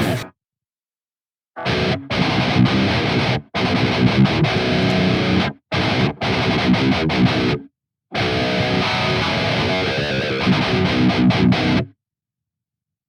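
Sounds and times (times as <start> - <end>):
distorted electric guitar riff: 1.6 - 7.6, 8.2 - 11.9.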